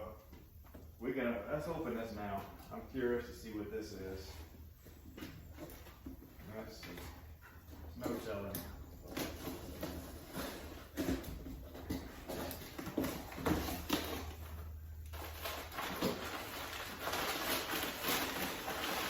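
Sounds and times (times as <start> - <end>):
cardboard package unpacked by hand: 8.0 - 19.0.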